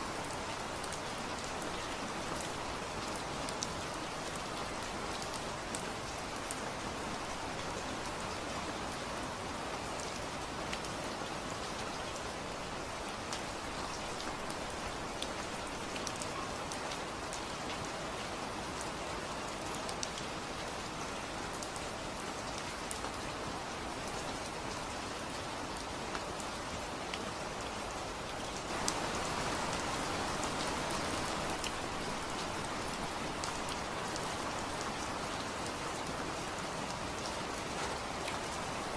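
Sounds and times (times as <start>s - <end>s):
steady rain falling: 0.0s - 38.9s
raindrops striking a surface: 24.0s - 38.9s.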